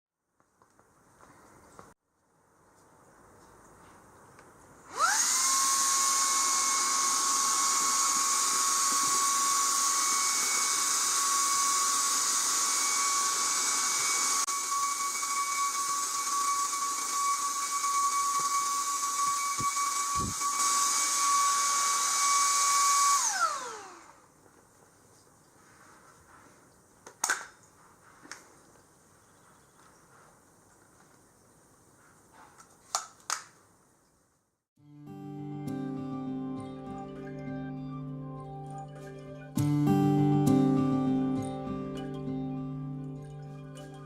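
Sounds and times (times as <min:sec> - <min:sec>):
handheld vacuum motor whine: 0:04.9 - 0:24.3.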